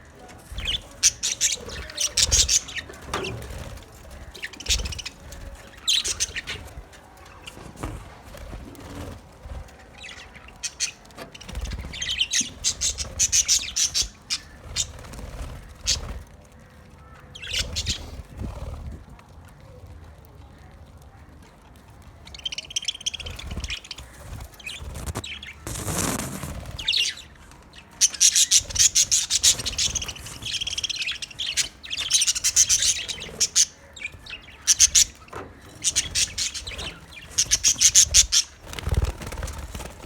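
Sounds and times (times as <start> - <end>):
budgerigars chirping and chattering: 0.0 - 19.0, 22.3 - 40.0
rustling noise: 6.4 - 9.9, 24.0 - 27.2.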